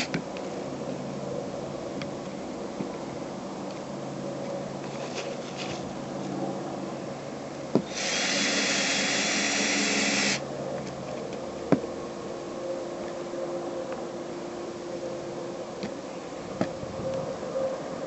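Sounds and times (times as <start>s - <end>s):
power drill driving screw: 7.8s - 10.4s.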